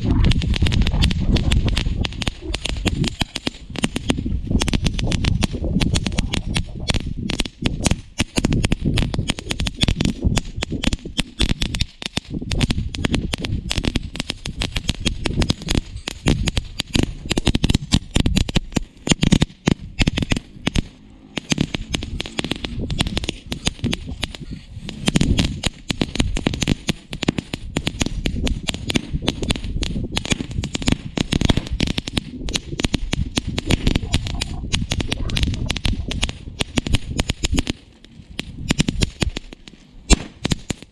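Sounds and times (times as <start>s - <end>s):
firework fountain crackling: 0.0s - 40.9s.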